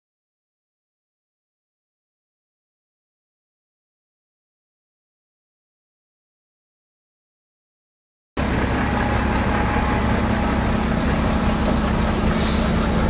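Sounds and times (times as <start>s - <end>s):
truck engine idling: 8.4s - 13.0s.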